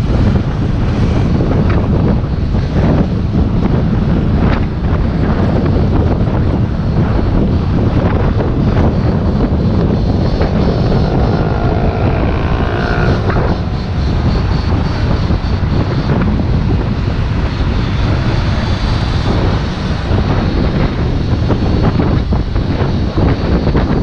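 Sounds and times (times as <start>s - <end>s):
wind buffeting microphone: 0.0s - 24.0s
electric motor whine: 9.5s - 17.1s.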